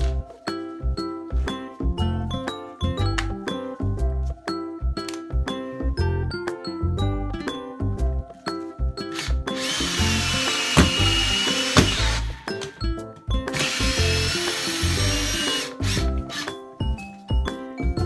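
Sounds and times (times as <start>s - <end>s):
background music: 0.0s - 18.0s
power tool motor whining: 9.2s - 12.7s, 13.6s - 16.5s.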